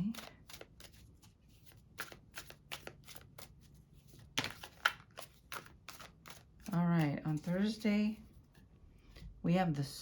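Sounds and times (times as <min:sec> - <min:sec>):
cards being shuffled: 0:00.0 - 0:07.8.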